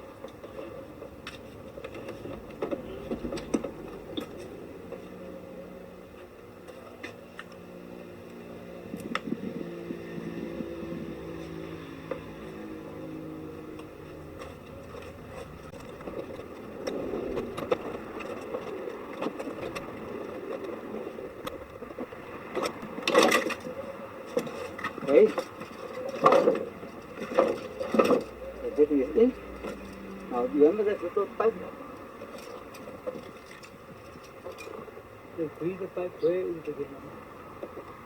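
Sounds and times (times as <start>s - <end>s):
rustling and scraping: 0.2s - 5.3s, 8.9s - 30.4s
low hum with shifting pitch: 2.4s - 22.5s.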